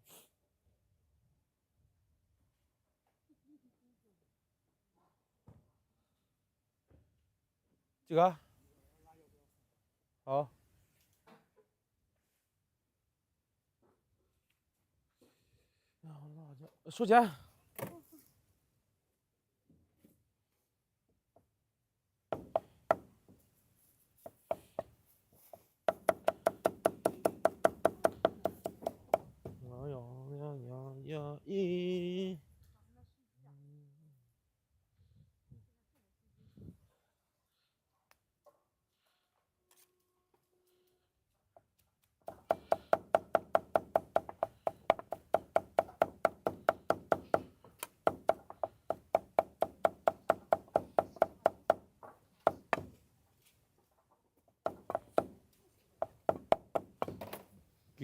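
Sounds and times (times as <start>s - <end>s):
rapid wooden knocking: 25.9s - 29.2s, 42.3s - 47.5s.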